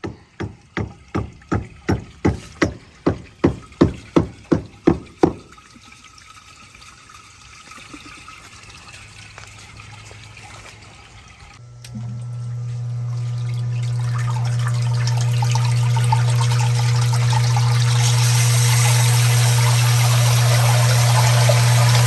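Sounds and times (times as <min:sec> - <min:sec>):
electric water pump humming: 0:00.0 - 0:22.0
rushing water: 0:13.2 - 0:22.0.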